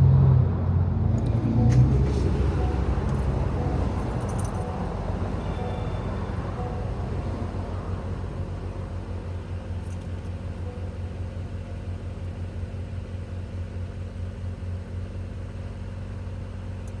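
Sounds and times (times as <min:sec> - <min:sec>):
car engine idling: 0:01.2 - 0:17.0.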